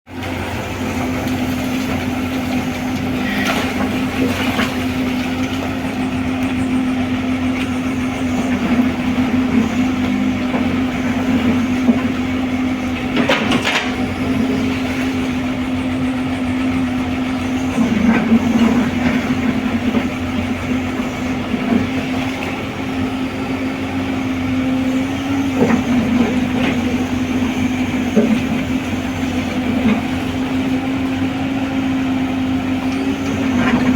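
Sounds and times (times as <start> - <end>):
excavator engine running: 0.1 - 33.9.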